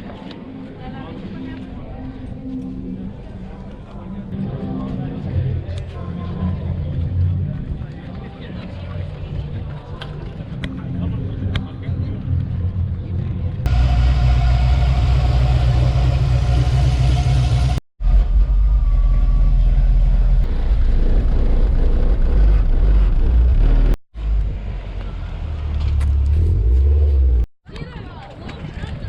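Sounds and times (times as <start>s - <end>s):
car engines rumbling: 11.4s - 27.5s.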